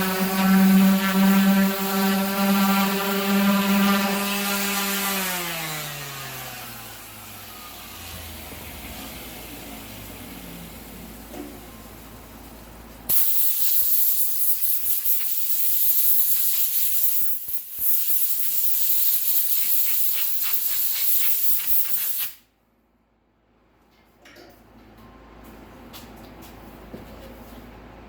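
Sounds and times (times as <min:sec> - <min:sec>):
pressurised spray hissing: 0:13.1 - 0:22.4.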